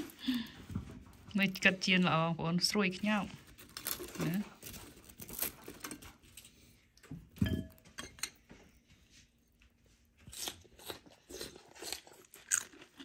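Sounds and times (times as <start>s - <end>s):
crunching and chewing fried fish: 3.4s - 6.6s, 9.6s - 13.0s.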